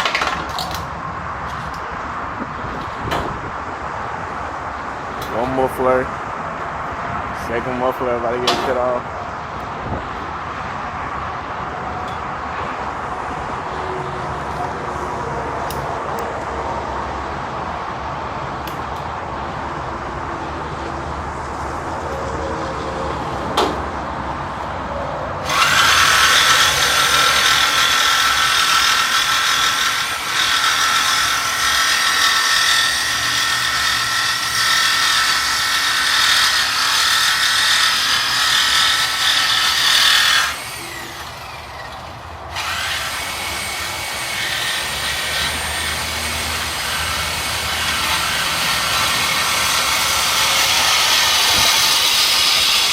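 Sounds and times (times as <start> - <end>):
power tool cutting exhaust pipe: 25.4 - 52.9.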